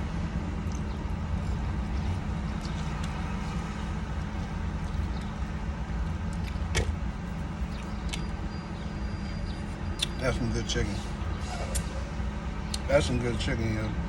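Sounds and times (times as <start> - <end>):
steady low hum: 0.0 - 14.0
crunching fried chicken: 0.5 - 8.6.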